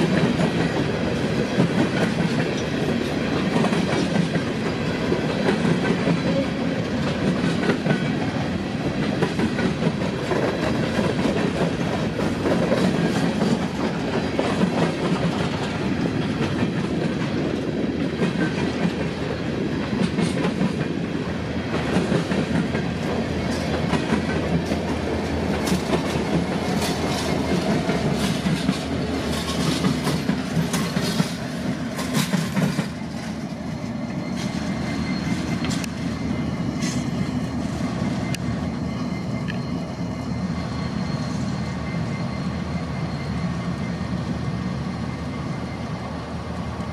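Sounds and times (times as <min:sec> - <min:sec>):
train wheels clacking over rail joints: 0:00.0 - 0:40.0
diesel locomotive rumble: 0:00.0 - 0:46.9.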